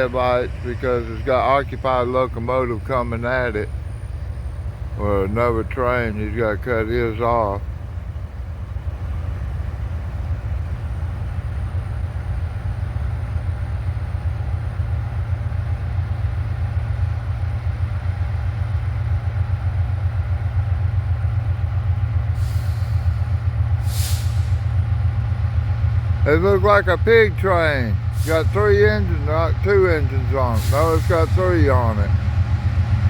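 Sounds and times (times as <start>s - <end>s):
diesel locomotive engine rumble: 0.0s - 33.0s
short hisses: 22.4s - 24.8s.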